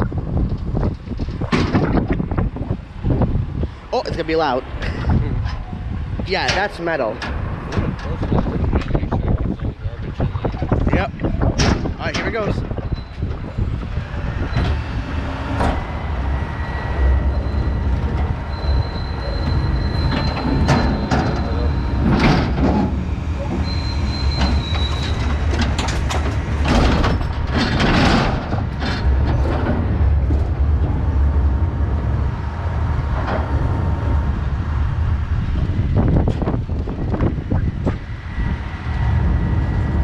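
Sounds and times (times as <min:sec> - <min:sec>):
diesel engine under load: 0:00.0 - 0:40.0
metal squeals: 0:12.7 - 0:26.1.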